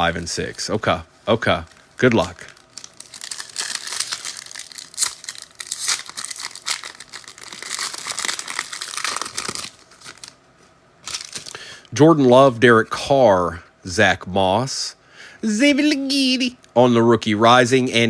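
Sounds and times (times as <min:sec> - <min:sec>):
foil wrapper tearing and crinkling: 0:02.0 - 0:10.4, 0:11.0 - 0:11.6.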